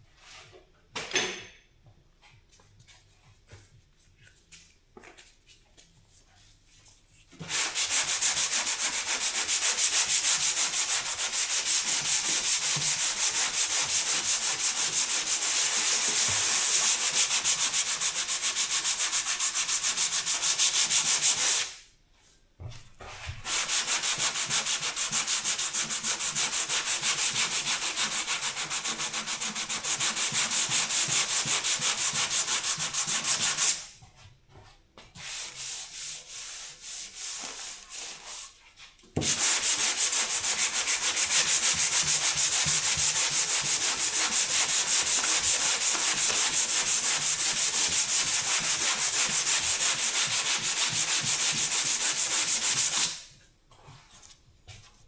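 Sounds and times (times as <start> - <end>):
sanding: 7.4 - 21.7, 23.4 - 33.8, 39.2 - 53.2.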